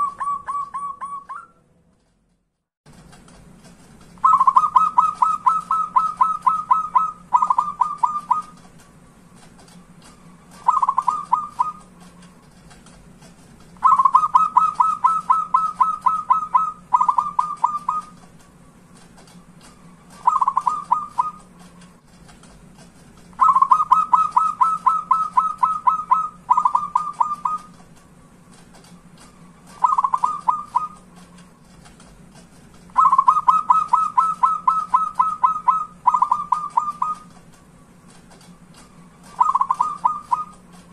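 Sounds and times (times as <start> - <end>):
dove cooing: 0.0 - 1.6, 4.2 - 8.6, 10.5 - 12.0, 13.8 - 18.2, 20.1 - 21.5, 23.4 - 27.8, 29.6 - 31.1, 32.9 - 37.4, 39.2 - 40.7.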